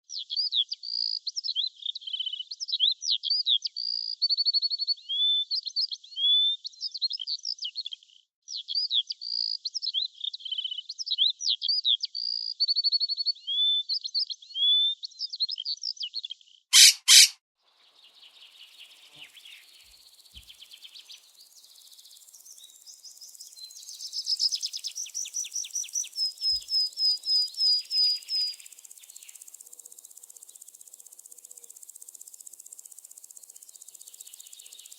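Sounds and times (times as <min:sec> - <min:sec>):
bird chirping and whistling: 0:16.8 - 0:17.3
faint insect-like trill: 0:17.7 - 0:34.9.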